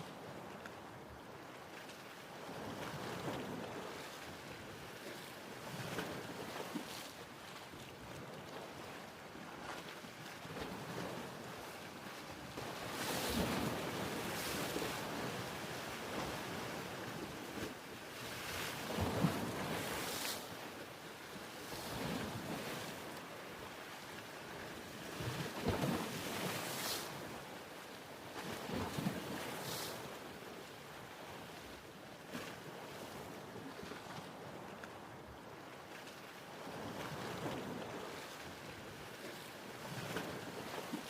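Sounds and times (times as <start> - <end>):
ocean waves breaking: 10.5 - 27.5.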